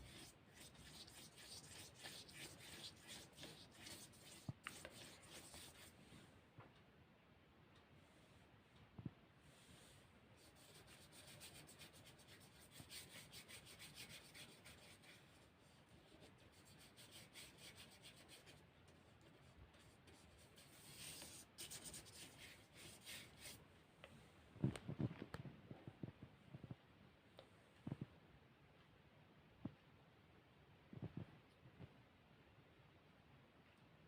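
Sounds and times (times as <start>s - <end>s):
paintbrush strokes on paper: 0.0s - 6.3s, 9.4s - 23.6s.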